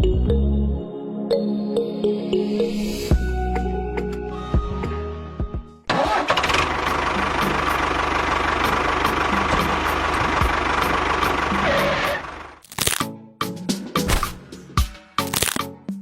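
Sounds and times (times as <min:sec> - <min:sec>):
background music with steady tones: 0:00.0 - 0:05.9
small engine running: 0:05.9 - 0:12.6.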